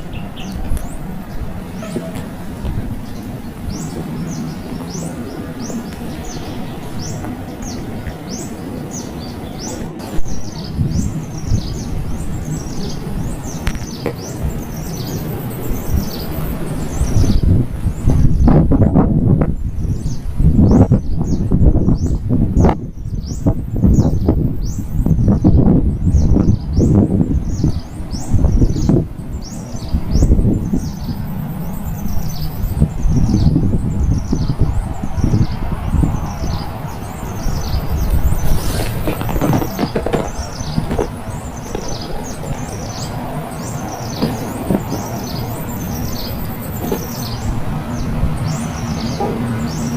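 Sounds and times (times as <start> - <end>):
steady low rumble: 0.0 - 49.9
small bird chirping: 19.8 - 49.9.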